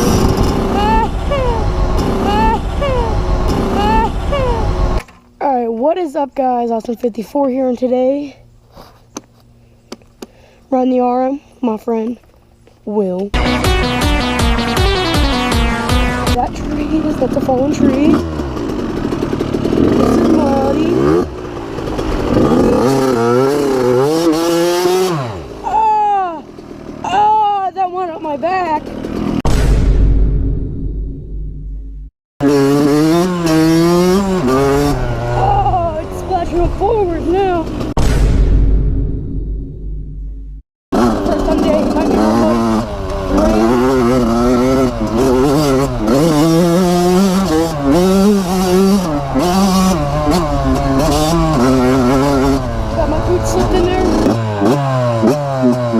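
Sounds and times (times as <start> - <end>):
dirt bike engine revving: 0.0 - 5.0, 13.4 - 29.5, 32.4 - 38.0, 40.9 - 55.9.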